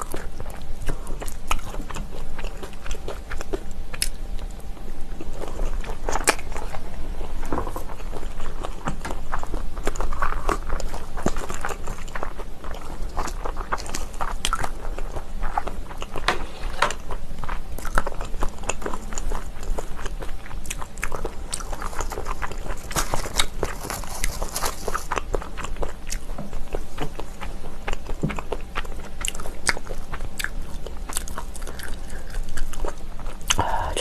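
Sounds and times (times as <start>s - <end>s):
person chewing crunchy food: 0.0s - 34.0s.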